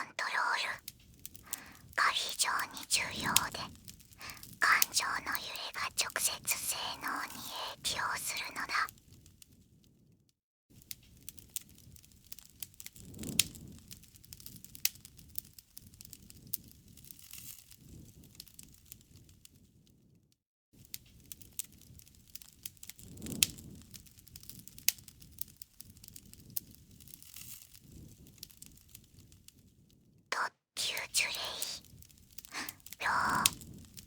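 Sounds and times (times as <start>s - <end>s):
campfire crackling and popping: 0.8s - 4.6s, 31.8s - 34.0s.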